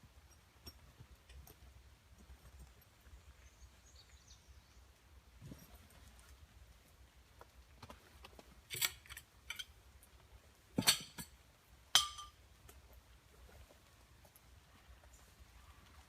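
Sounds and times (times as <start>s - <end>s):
camping gear clicks and knocks: 5.4s - 6.4s, 7.3s - 15.2s.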